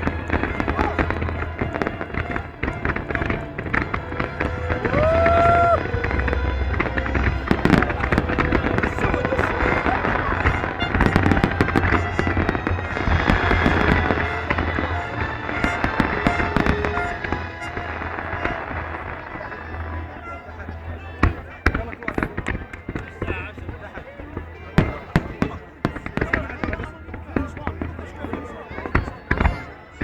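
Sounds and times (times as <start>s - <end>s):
fireworks bangs and crackling: 0.0s - 30.0s.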